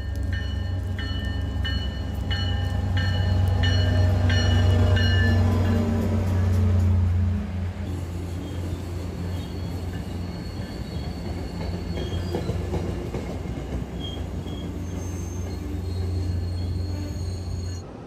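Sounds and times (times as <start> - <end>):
train rolling into station: 0.0 - 18.0
faint high wheel squeal: 8.3 - 12.7, 14.0 - 17.8.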